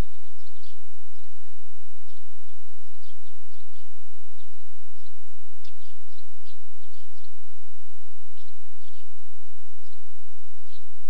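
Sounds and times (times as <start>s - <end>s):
small birds chirping: 0.0s - 11.0s
steady hiss: 0.0s - 11.0s.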